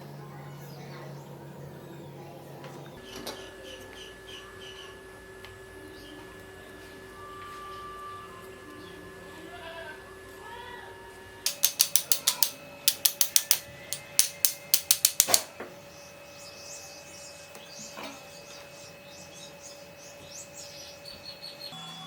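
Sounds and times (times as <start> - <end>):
sharp irregular clicks: 11.5 - 15.4.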